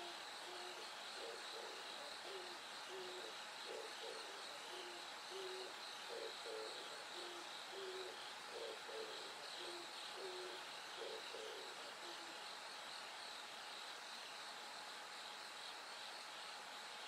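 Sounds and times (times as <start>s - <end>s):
bird hooting: 0.0s - 12.5s
crickets trilling: 0.0s - 17.0s.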